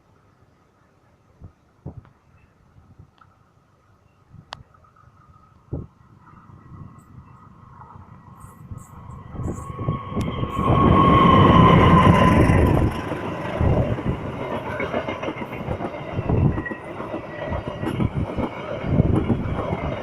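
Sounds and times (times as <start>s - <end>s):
train passing: 4.9s - 20.0s
high whine: 5.4s - 15.0s
wheel clatter on rails: 9.5s - 20.0s.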